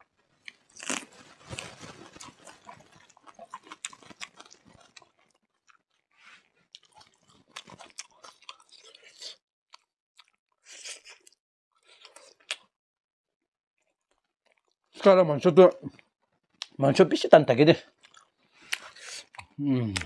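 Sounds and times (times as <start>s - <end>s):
close-up chewing and crunching: 0.1s - 12.7s, 13.8s - 14.9s, 17.8s - 20.0s.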